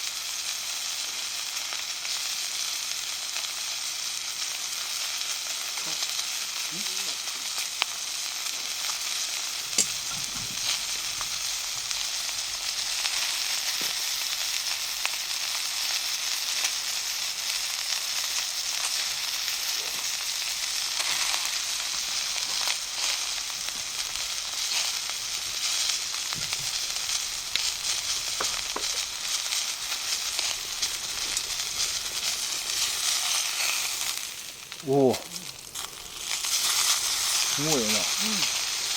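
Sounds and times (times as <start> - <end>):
meat sizzling in a skillet: 0.0 - 38.9
sharp fat pops: 9.7 - 11.8.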